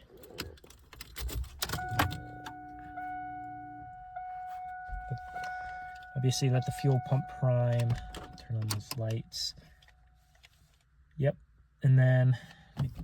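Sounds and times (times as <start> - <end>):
car keys jingling: 0.0 - 10.8
fuel pump hum: 1.2 - 9.9
electronic warning chime: 1.7 - 9.5.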